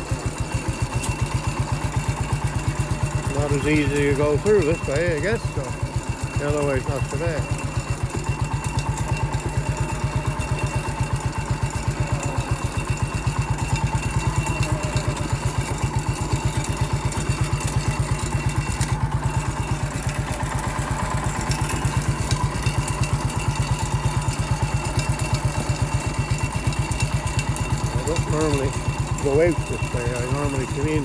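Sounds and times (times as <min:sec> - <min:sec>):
small tractor engine throbbing: 0:00.0 - 0:31.0.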